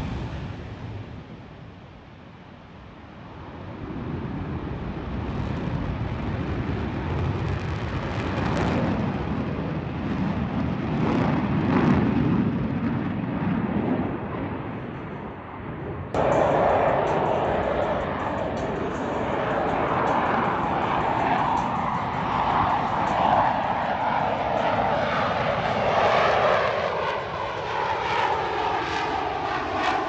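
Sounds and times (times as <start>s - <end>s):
airplane flying past: 3.3s - 30.0s.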